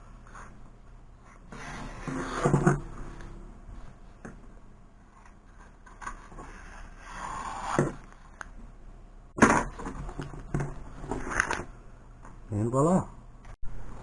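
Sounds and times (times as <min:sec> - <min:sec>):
rubbing or scraping: 0:01.2 - 0:04.0.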